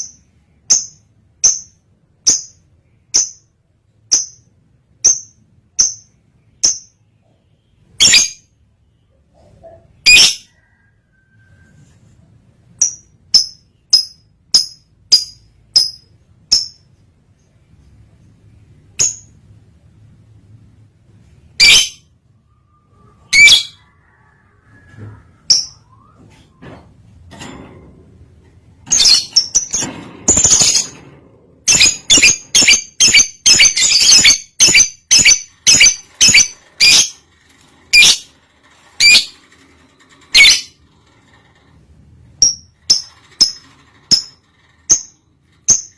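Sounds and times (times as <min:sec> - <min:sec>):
lovebird chirping calls: 0:08.0 - 0:08.5, 0:10.0 - 0:10.5, 0:21.6 - 0:23.8, 0:31.7 - 0:37.2, 0:37.9 - 0:38.3, 0:40.3 - 0:40.8.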